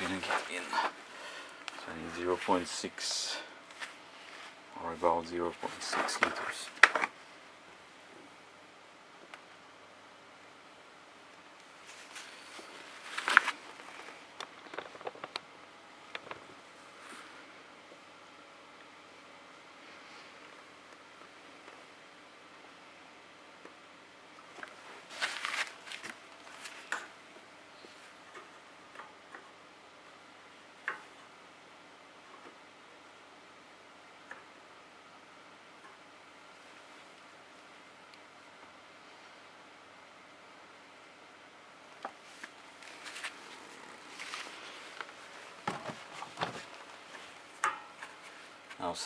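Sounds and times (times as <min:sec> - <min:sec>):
plastic rustling: 0:00.0 - 0:02.6, 0:11.8 - 0:15.4, 0:24.7 - 0:27.0, 0:42.2 - 0:48.6
light clicks and rustling: 0:11.9 - 0:15.5.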